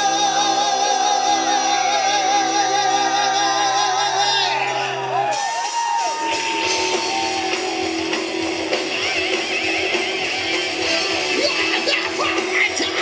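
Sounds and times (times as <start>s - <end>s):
heavy metal band playing live: 0.0s - 13.0s.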